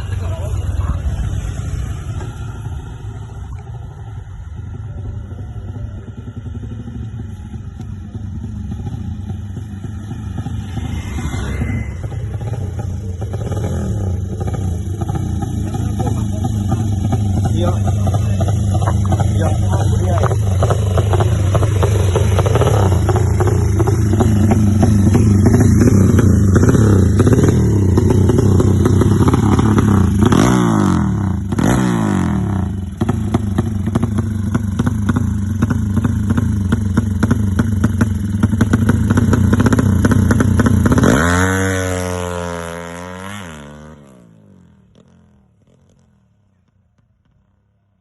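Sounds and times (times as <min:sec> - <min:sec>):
engine running loudly: 0:00.0 - 0:45.0.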